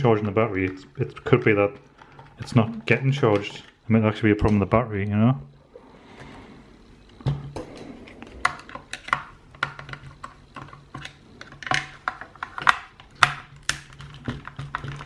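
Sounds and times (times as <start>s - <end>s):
small parts clicking and clattering: 7.1s - 15.0s.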